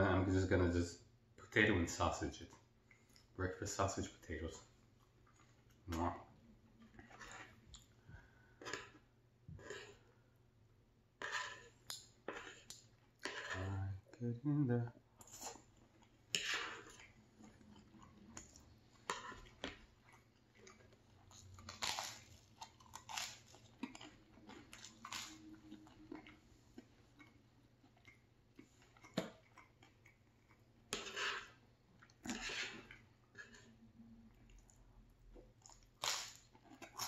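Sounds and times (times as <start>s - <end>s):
person chewing and biting food: 6.7s - 10.1s, 11.2s - 13.7s, 15.2s - 33.8s, 34.4s - 37.0s.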